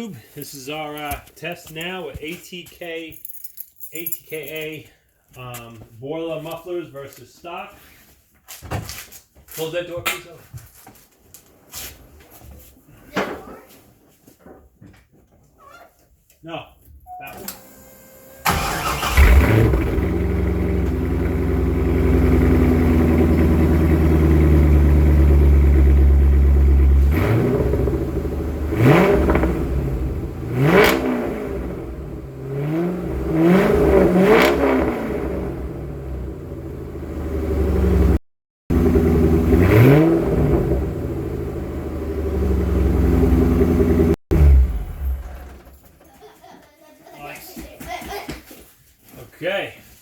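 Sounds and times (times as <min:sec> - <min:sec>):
car engine idling and revving: 0:17.8 - 0:45.7.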